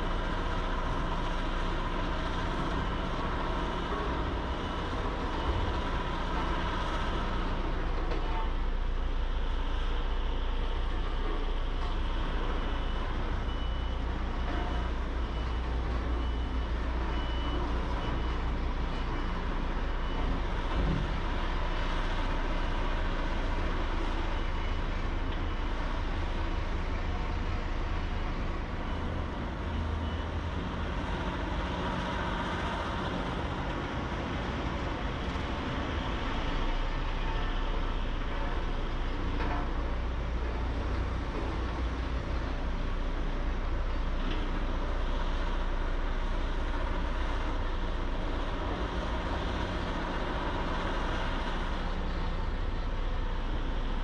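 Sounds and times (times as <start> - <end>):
diesel construction machinery running: 0.0 - 54.0
reversing alarm beeps: 1.6 - 7.6, 10.3 - 21.3, 22.2 - 32.1.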